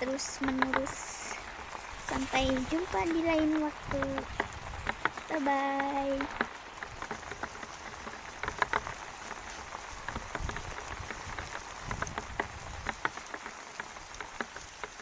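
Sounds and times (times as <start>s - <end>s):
hiss of downpour: 0.0s - 15.0s
raindrops tapping: 0.0s - 15.0s.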